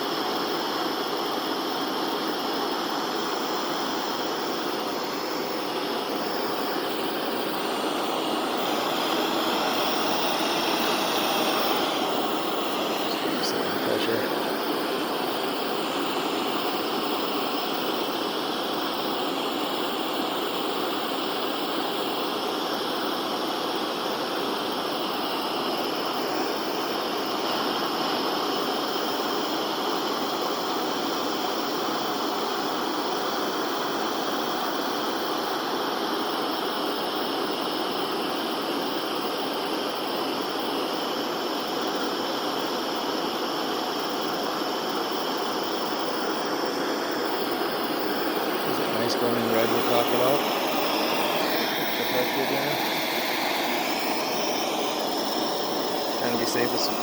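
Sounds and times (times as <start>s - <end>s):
torch flame hissing: 0.0s - 57.0s.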